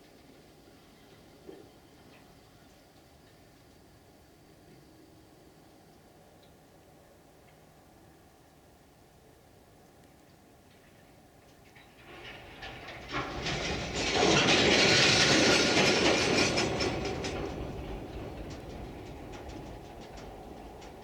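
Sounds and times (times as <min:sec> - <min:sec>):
train wheels clattering: 0:11.5 - 0:21.0
diesel locomotive passing: 0:11.8 - 0:21.0.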